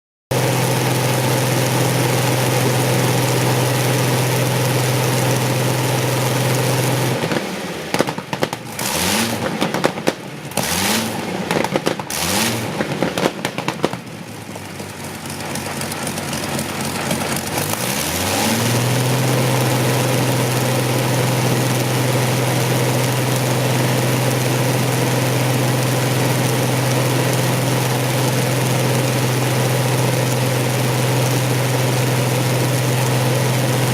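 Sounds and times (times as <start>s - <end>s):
aero engine running: 0.3s - 33.9s
engine pops and rev surges: 5.3s - 33.9s.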